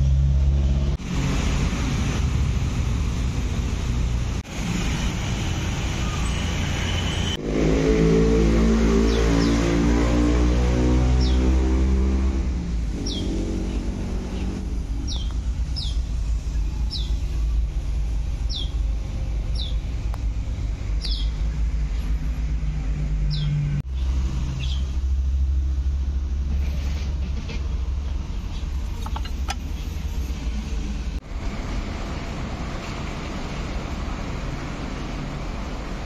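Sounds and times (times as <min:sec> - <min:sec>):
bird chirping: 0:13.0 - 0:17.5, 0:18.4 - 0:18.8, 0:19.5 - 0:19.8, 0:20.9 - 0:22.1.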